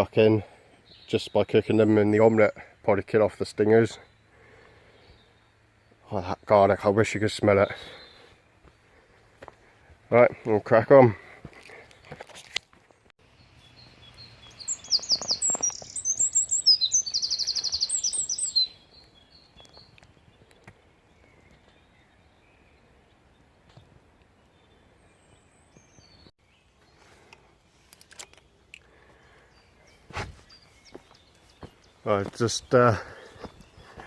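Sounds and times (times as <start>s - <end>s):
songbird trilling: 13.4s - 20.0s.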